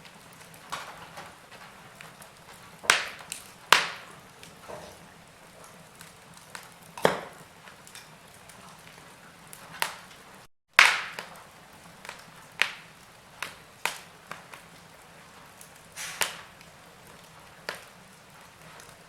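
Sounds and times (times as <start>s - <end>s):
wood fire crackling: 0.0s - 19.0s
faint hiss: 15.9s - 16.6s.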